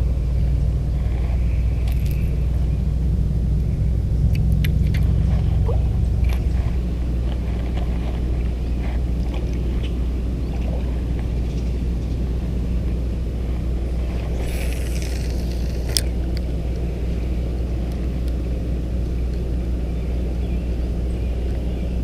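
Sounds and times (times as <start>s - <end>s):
steady low hum: 0.0s - 22.0s
short hiss: 14.3s - 16.0s.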